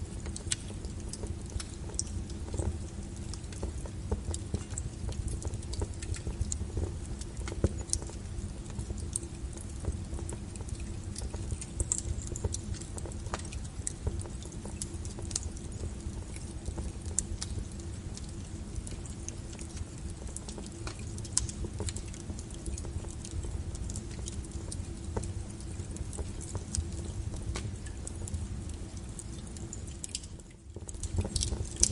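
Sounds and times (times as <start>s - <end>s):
burning logs crackling and popping: 0.0s - 31.9s
low rumble of flames: 0.0s - 31.9s.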